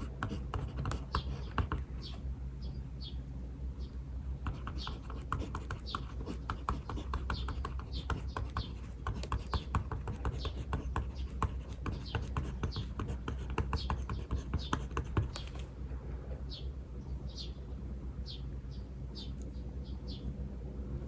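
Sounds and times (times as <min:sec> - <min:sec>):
small birds chirping: 0:00.0 - 0:15.7, 0:16.5 - 0:20.4.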